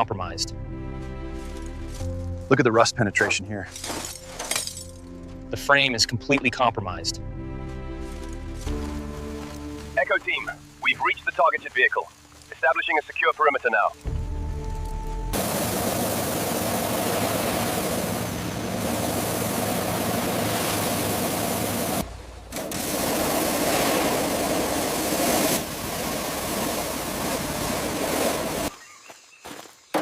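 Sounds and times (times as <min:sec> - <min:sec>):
steady rushing noise: 0:12.5 - 0:28.7.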